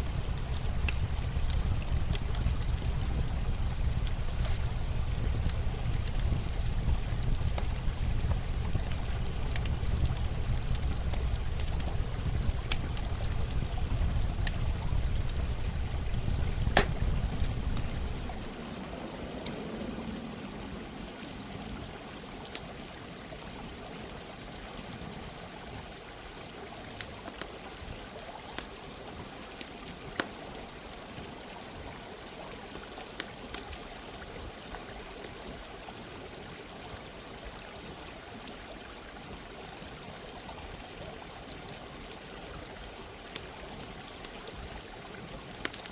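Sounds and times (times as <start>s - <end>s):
low rumble: 0.0s - 18.6s
campfire crackling: 0.0s - 18.8s, 26.9s - 32.0s, 32.7s - 45.9s
running water: 0.0s - 45.9s.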